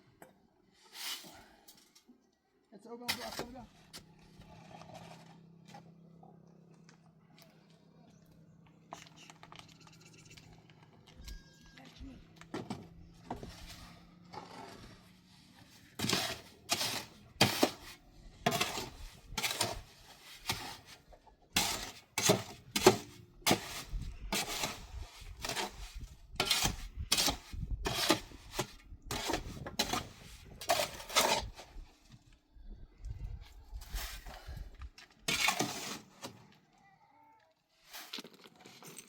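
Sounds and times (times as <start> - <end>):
metal tool scraping: 13.3 - 21.0, 21.6 - 31.8, 35.3 - 36.4.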